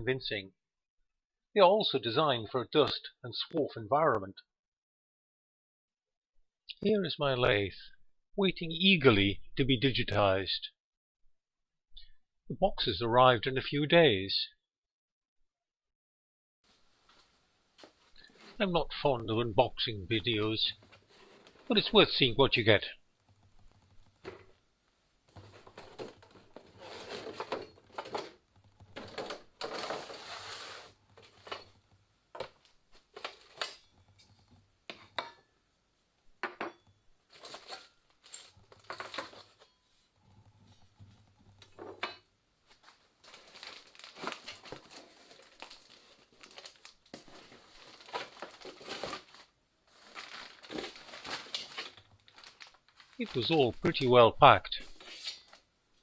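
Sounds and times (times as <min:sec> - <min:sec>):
packing material rustling: 0:20.7 - 0:21.7, 0:25.3 - 0:31.7, 0:37.3 - 0:40.2, 0:42.7 - 0:53.4.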